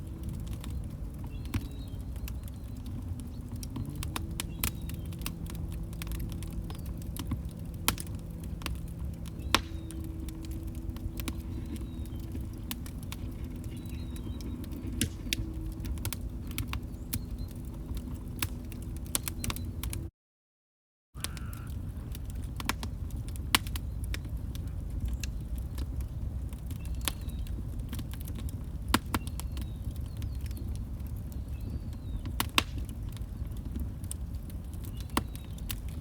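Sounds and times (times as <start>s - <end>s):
faint steady hum: 0.0s - 20.1s
log fire crackling: 0.0s - 20.1s, 21.2s - 36.0s
low rumble: 0.0s - 20.1s.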